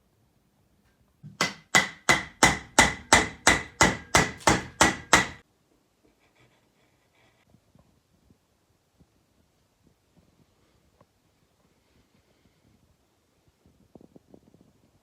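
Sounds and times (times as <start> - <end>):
mallet striking chisel into wood: 1.3 - 5.4.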